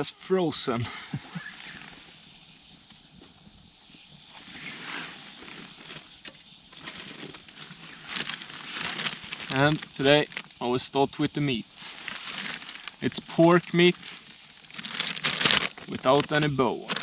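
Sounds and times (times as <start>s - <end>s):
steady hiss: 0.0s - 17.0s
rustling of items handled: 4.6s - 10.6s, 11.4s - 17.0s
campfire crackling: 5.4s - 17.0s.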